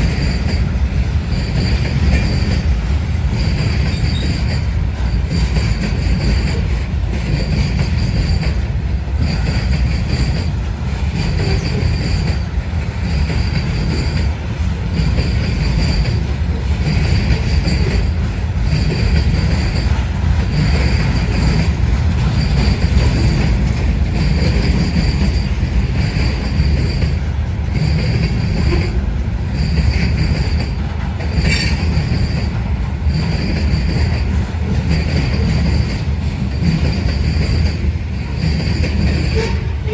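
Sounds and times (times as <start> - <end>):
train wheels rumbling on rail: 0.0 - 39.9
high wheel squeal: 3.5 - 5.8.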